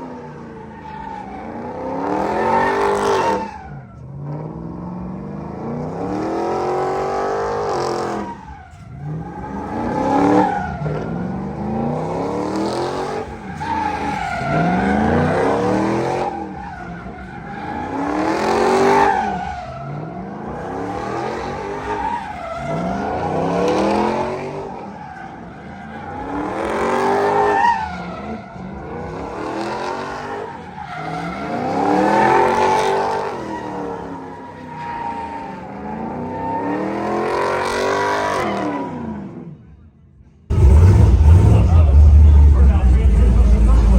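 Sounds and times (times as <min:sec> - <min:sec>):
tyres spinning and skidding: 0:05.7 - 0:39.1, 0:40.5 - 0:43.9
car engine revving hard: 0:40.5 - 0:43.9.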